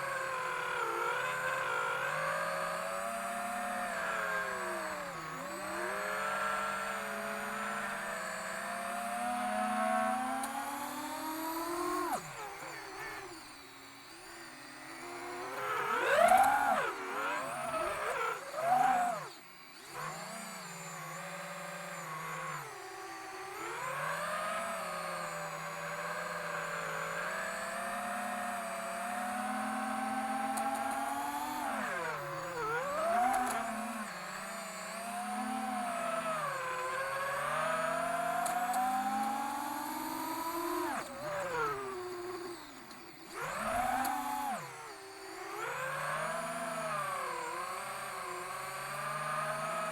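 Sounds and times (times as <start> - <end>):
quadcopter motors whining: 0.0 - 49.9.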